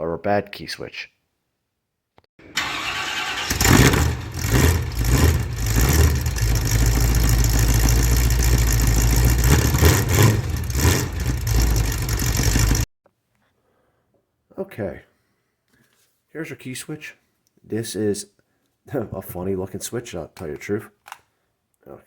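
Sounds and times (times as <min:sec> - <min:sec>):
engine rumbling: 0:02.4 - 0:12.9.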